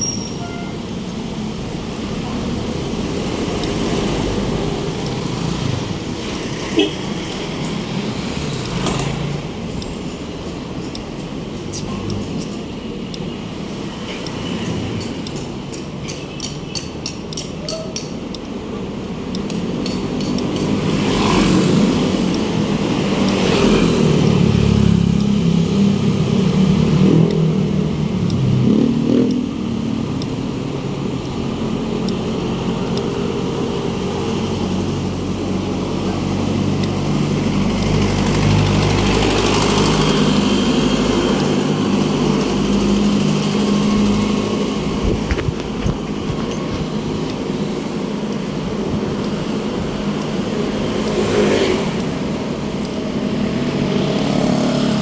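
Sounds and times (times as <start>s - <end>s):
car engines passing: 0.7s - 55.0s
motorcycle engines passing: 0.8s - 55.0s
engine revving: 19.4s - 55.0s.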